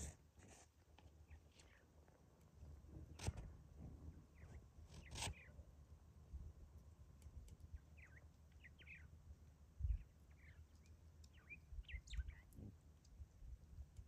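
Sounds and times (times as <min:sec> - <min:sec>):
faint small bird chirps: 0:04.3 - 0:05.6, 0:07.6 - 0:09.2, 0:09.8 - 0:12.8.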